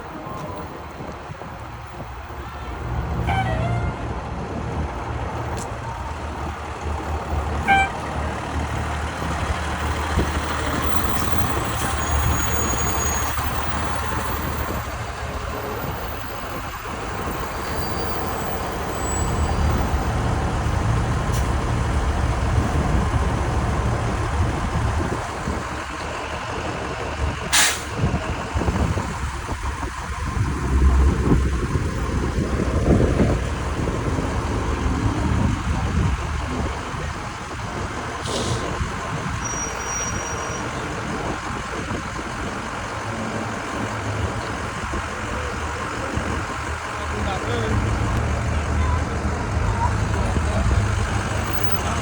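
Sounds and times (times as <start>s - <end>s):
fire truck diesel engines rumbling: 0.0s - 52.0s
air brakes hissing: 27.5s - 28.0s, 38.2s - 38.8s.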